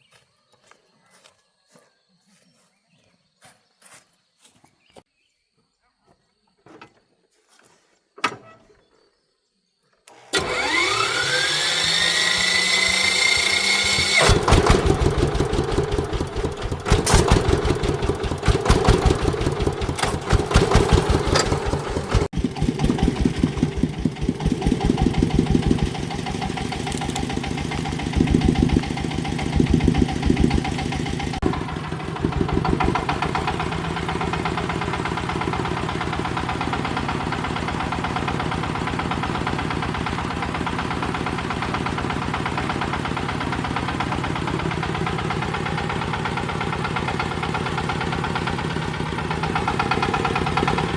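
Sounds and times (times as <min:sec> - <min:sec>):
engine starter whining: 0:10.1 - 0:50.9
engine running and idling: 0:10.3 - 0:50.9.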